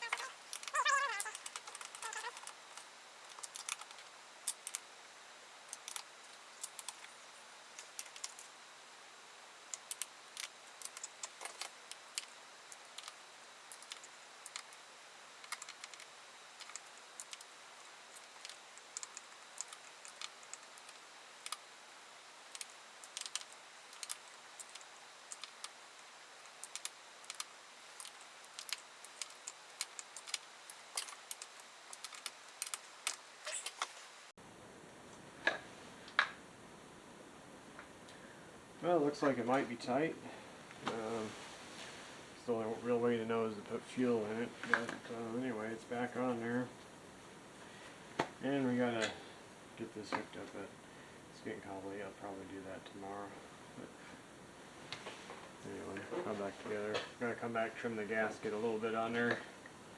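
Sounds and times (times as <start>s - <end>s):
hand tools clicking and rattling: 0.0s - 4.8s.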